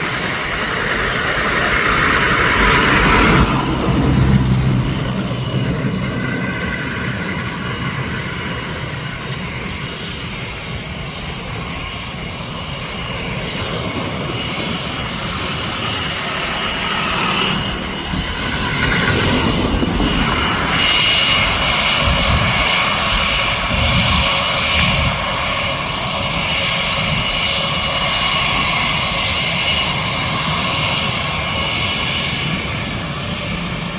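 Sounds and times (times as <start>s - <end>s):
jet engines running: 0.0s - 33.9s.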